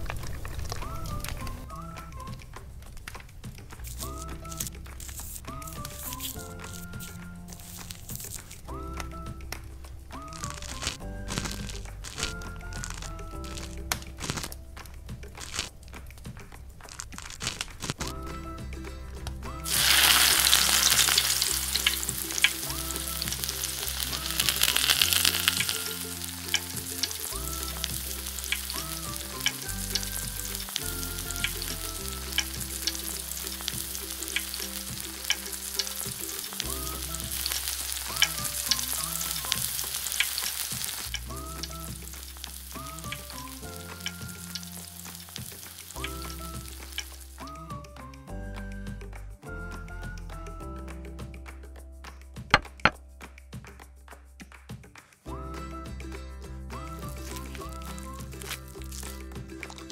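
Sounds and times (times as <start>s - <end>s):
light background music: 0.0s - 59.9s
food sizzling in hot oil: 19.6s - 47.5s.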